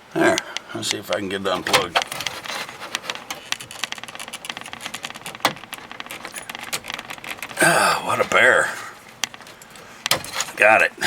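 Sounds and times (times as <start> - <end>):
plastic connector clicking and rattling: 0.4 - 8.5, 9.2 - 10.3.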